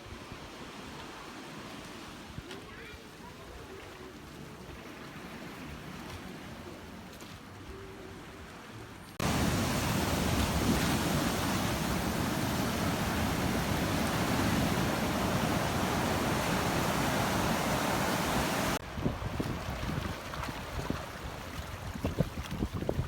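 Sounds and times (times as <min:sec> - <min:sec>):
ocean surf rushing: 0:09.2 - 0:19.3
water splashes and thuds: 0:09.2 - 0:23.0.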